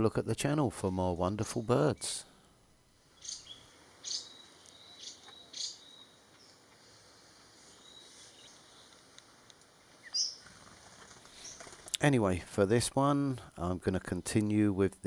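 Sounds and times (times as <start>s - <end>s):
faint insect whine: 1.6s - 11.9s
high-pitched bird chirps: 3.2s - 6.1s.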